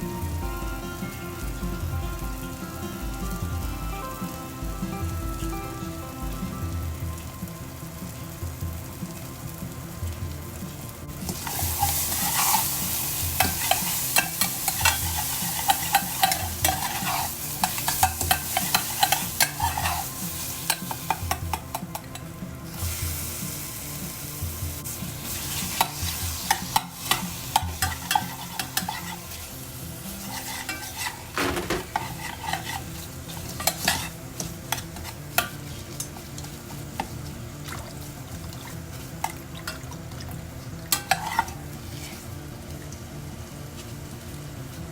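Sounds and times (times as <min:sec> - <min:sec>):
food sizzling in a pan: 0:00.0 - 0:44.9
utensil scraping a pan: 0:11.3 - 0:22.3, 0:25.2 - 0:37.3, 0:40.9 - 0:42.3.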